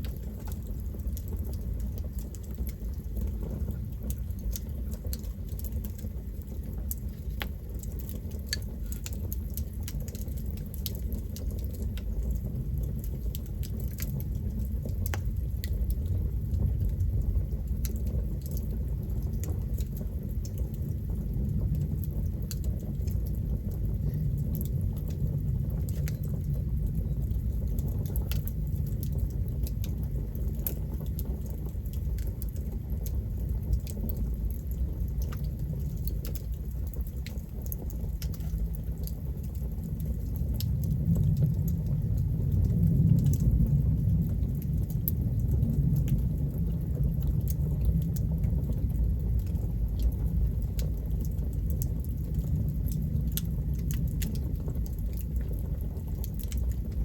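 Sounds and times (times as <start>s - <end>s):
campfire wood crackling: 0.0s - 57.0s
low rumble: 38.2s - 56.9s.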